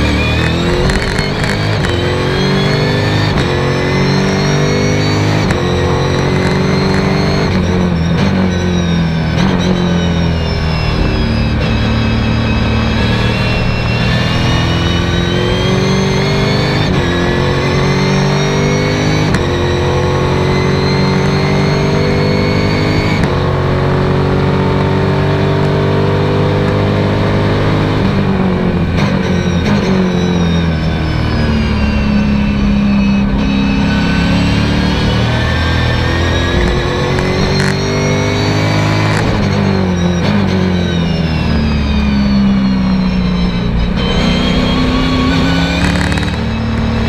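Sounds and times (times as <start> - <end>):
race car engine accelerating: 0.0 - 47.0.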